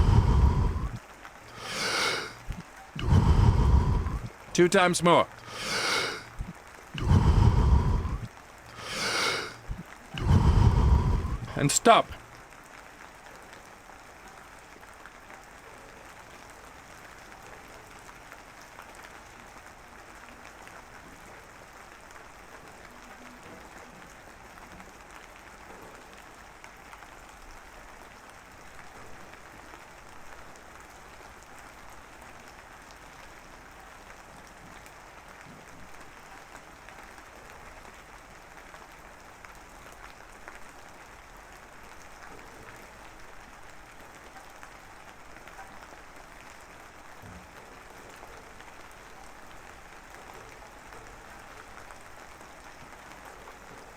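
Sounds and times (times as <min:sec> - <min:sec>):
steady rain: 0:00.0 - 0:53.9.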